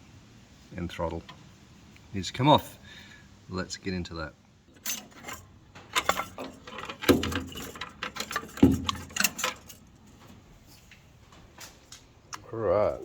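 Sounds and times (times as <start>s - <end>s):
metal parts and tools clinking: 4.7s - 10.2s.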